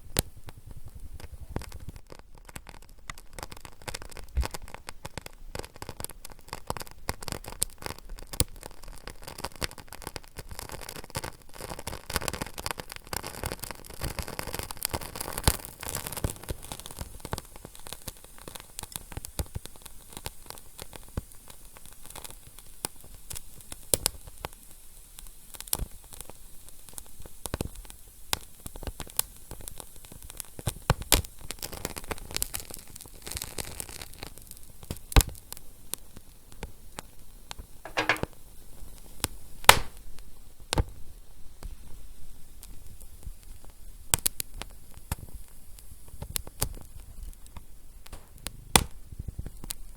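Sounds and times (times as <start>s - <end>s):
wood fire crackling: 37.9s - 38.4s, 39.7s - 40.1s, 46.1s - 49.9s.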